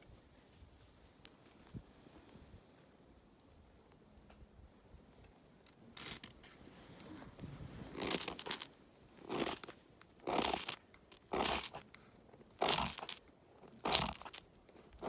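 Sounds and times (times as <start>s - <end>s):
crunching footsteps: 7.9s - 11.8s, 12.5s - 15.0s.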